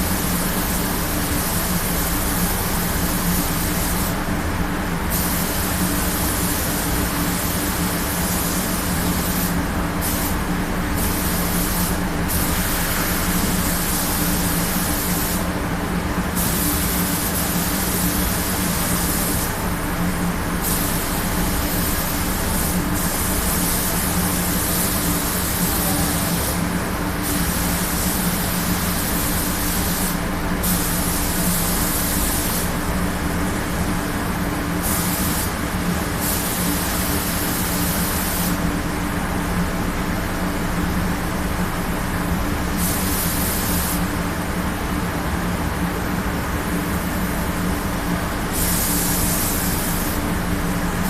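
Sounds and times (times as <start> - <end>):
paint spray gun hissing: 0.0 - 4.3, 5.0 - 15.6, 16.3 - 32.9, 34.8 - 38.7, 42.7 - 44.2, 48.5 - 51.0
constant machine hum: 0.0 - 51.0.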